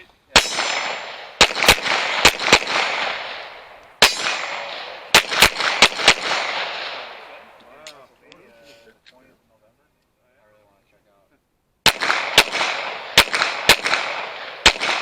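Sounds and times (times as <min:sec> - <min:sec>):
pistol shots with echo: 0:00.3 - 0:07.6, 0:11.8 - 0:15.0.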